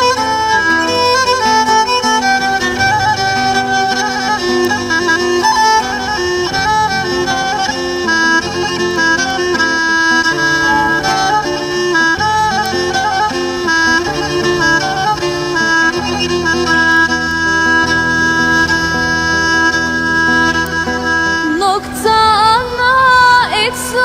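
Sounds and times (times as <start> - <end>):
bass line: 0.0 - 21.5
reedy wind instrument melody: 0.0 - 24.0.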